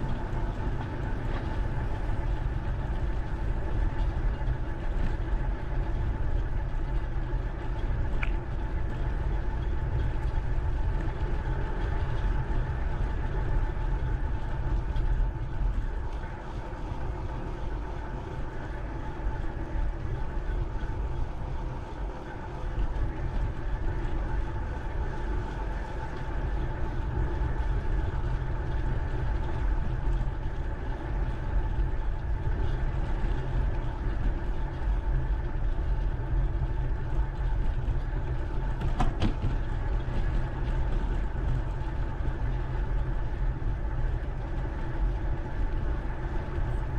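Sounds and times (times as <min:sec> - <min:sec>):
bike riding noise: 0:00.0 - 0:46.9
faint steady whine: 0:00.0 - 0:46.9
wind rumbling on microphone: 0:00.0 - 0:46.9.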